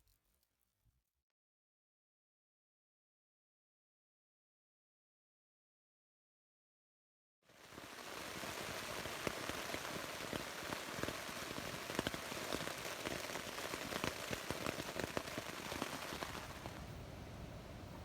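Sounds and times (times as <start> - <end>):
heavy rain on a surface: 7.5 - 17.0.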